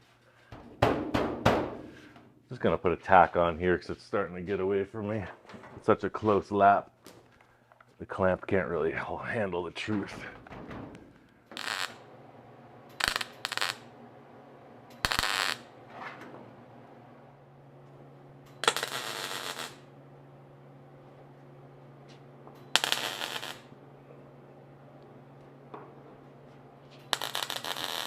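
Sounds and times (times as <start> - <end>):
low steady hum: 0.1 - 27.3
welder crackling hiss: 11.6 - 12.0, 13.0 - 13.8, 15.0 - 15.6, 18.6 - 19.8, 22.8 - 23.7, 27.1 - 28.0.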